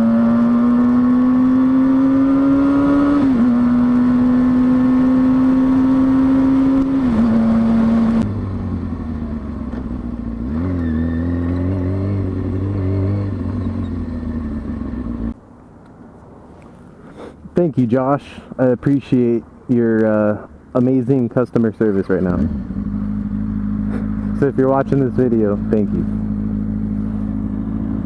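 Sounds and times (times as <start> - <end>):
rough engine revving: 0.0 - 9.6, 21.9 - 28.0
motorcycle engine running high: 0.0 - 15.4, 22.3 - 28.0.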